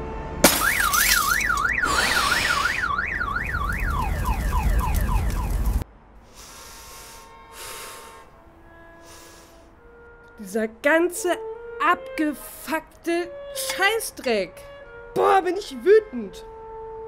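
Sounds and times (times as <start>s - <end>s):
car alarm wailing: 0.5s - 5.8s.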